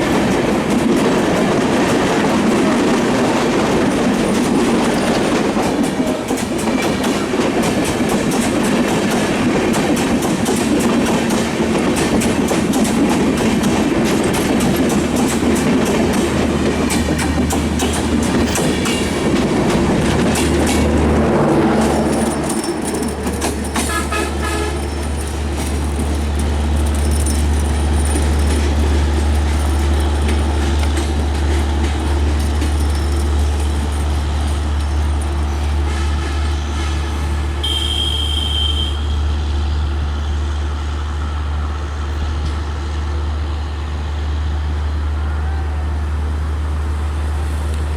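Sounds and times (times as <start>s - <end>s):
train wheels clattering: 0.0s - 37.8s
train rumbling: 0.0s - 47.9s.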